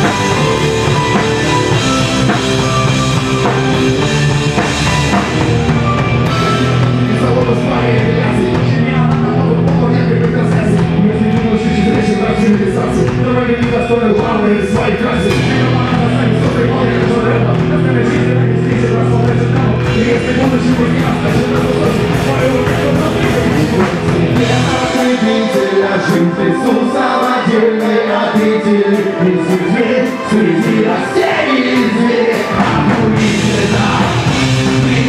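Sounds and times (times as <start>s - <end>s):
deep bass: 0.0s - 25.2s, 32.5s - 35.0s
rock band playing loudly: 0.0s - 35.0s.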